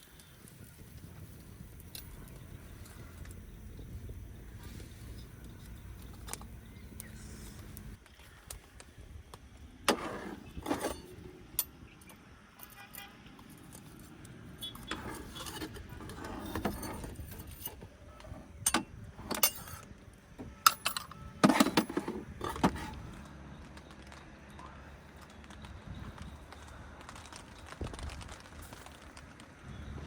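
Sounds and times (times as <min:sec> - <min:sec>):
objects clinking and knocking: 0:09.9 - 0:23.2.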